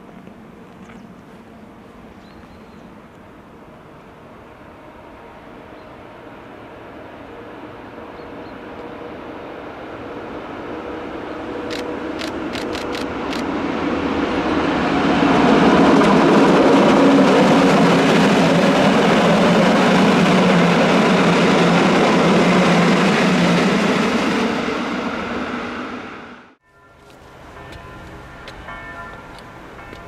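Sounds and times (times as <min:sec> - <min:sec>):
train wheels humming on rails: 0:00.0 - 0:30.0
sharp ticks: 0:11.7 - 0:13.5.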